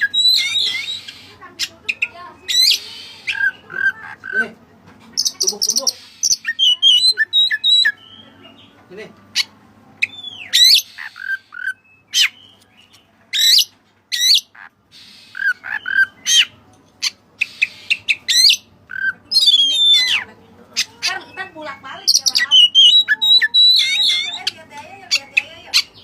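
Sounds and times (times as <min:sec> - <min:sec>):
bird singing whistled notes: 0:00.0 - 0:01.3, 0:05.2 - 0:08.6, 0:10.0 - 0:14.4, 0:21.4 - 0:24.5.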